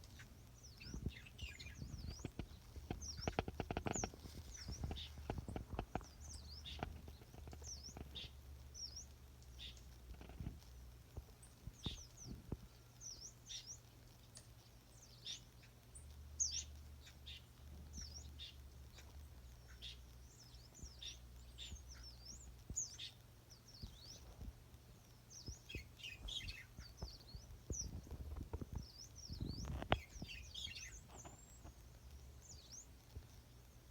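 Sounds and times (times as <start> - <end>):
birds singing and chirping: 0.0 - 10.6, 11.3 - 33.9
faint low hum: 0.0 - 33.9.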